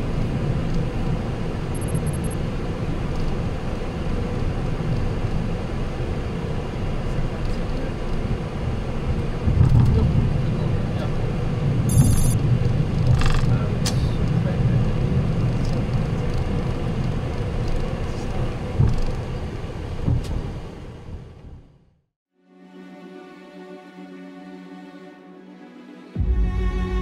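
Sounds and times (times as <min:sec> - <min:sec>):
flight deck rumble: 0:00.0 - 0:21.8
high electronic pips: 0:11.9 - 0:12.4
rapid high pulsing: 0:11.9 - 0:12.4.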